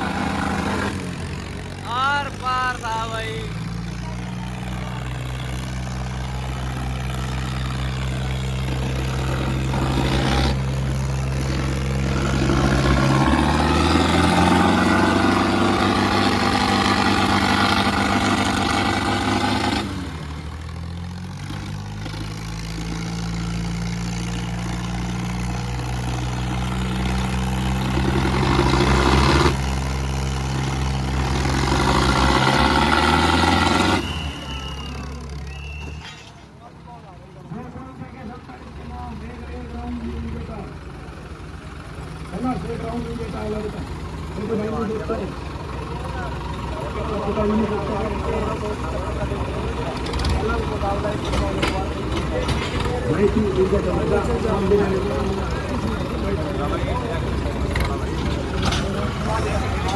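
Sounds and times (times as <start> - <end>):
tractor diesel engines straining: 0.0 - 59.9.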